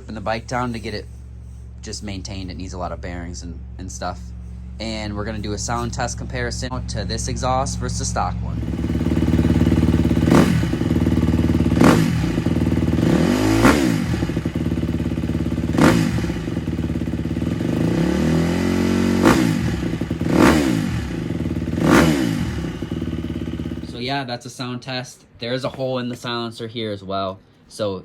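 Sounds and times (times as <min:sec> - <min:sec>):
motocross engine idling and revving: 0:00.0 - 0:24.1.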